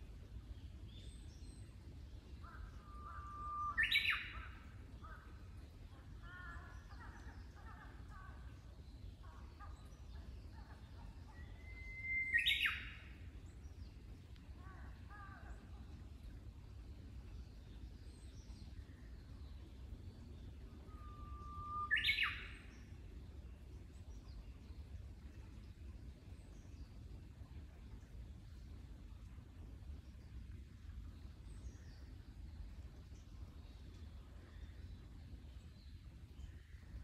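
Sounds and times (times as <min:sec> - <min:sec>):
songbird singing whistled phrases: 0:11.4 - 0:13.0, 0:20.9 - 0:22.7.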